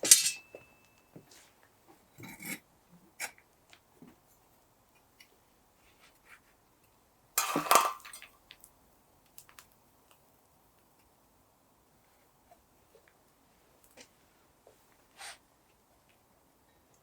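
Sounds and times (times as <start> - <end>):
hard objects clattering: 7.4 - 8.3.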